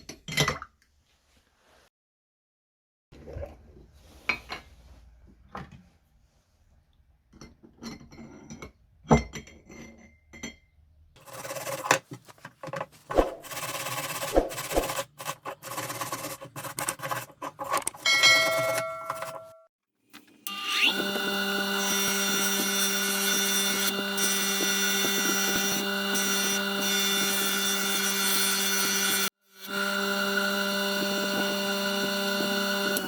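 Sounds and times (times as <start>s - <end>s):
continuous scraping and rubbing: 11.2s - 19.6s
tools clinking and knocking: 17.4s - 19.6s.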